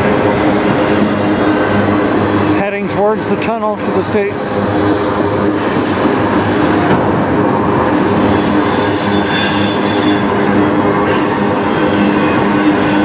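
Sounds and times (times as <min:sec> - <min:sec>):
steel wheels rumbling on rail: 0:00.0 - 0:13.0
wheels squealing: 0:07.9 - 0:10.4, 0:11.1 - 0:13.0.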